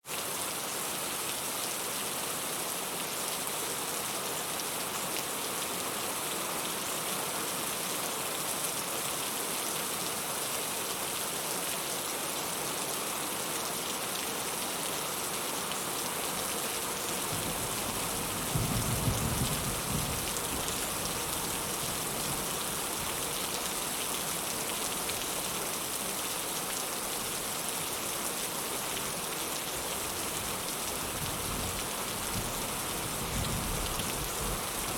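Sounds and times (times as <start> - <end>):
heavy rain pattering: 16.8 - 27.4
low rumble of thunder: 17.4 - 20.7.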